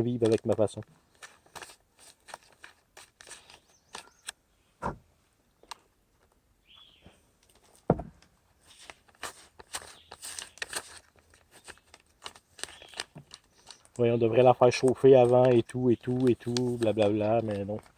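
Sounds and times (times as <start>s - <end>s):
plastic packet crinkling: 0.0s - 4.3s, 8.6s - 17.9s.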